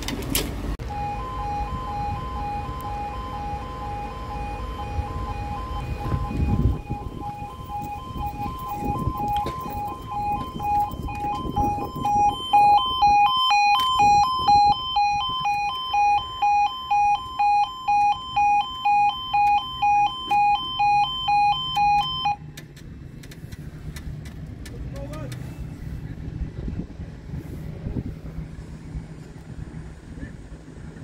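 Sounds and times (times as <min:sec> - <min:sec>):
level crossing alarm warbling: 0:00.8 - 0:22.4.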